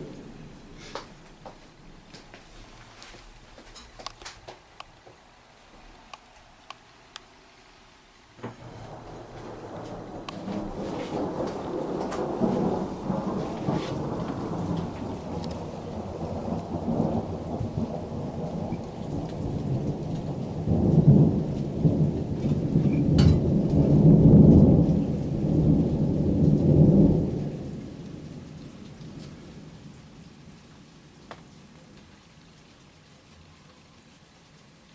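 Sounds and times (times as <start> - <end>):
deep rolling thunder: 0.0 - 2.1, 8.4 - 30.3
rain falling: 0.0 - 34.9.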